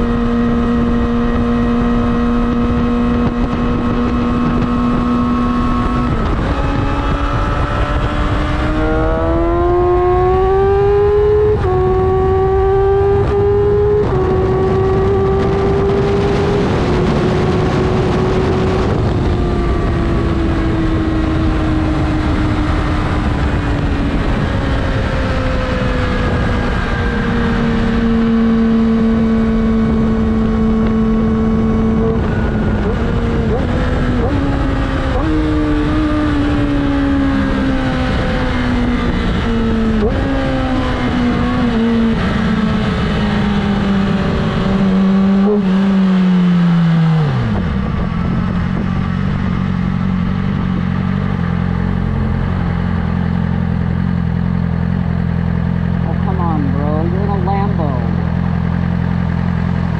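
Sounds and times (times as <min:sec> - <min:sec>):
wind rushing past microphone: 0:00.0 - 0:53.9
motorcycle engine on the road: 0:00.0 - 0:59.9.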